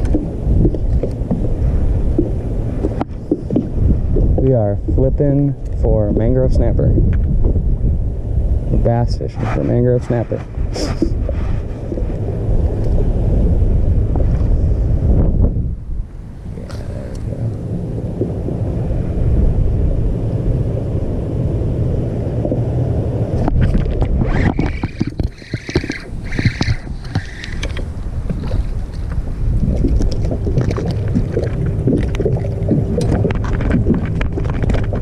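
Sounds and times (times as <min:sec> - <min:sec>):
wind buffeting microphone: 0:00.0 - 0:35.0
knocks and clicks: 0:23.4 - 0:28.4.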